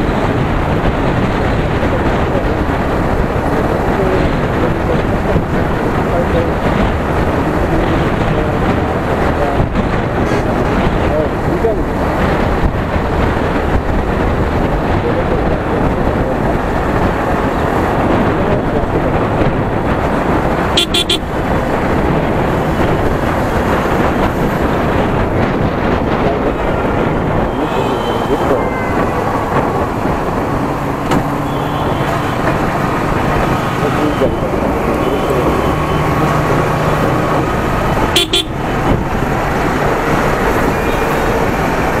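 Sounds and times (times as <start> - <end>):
passing vehicles: 0.0 - 42.0
wind rushing on microphone: 0.0 - 42.0
motorcycle engine: 16.1 - 42.0
vehicle horn beep: 20.8 - 21.3, 27.5 - 29.3, 31.4 - 32.4, 38.1 - 38.6.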